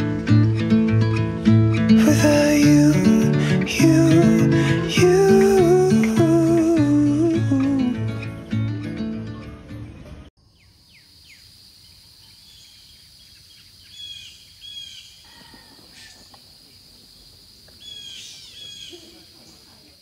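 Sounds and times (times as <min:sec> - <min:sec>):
birds chirping: 0:04.9 - 0:20.0.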